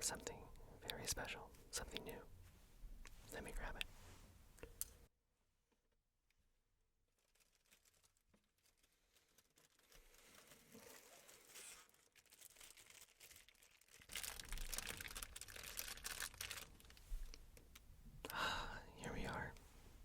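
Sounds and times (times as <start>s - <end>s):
packaging rustling: 7.1s - 17.8s.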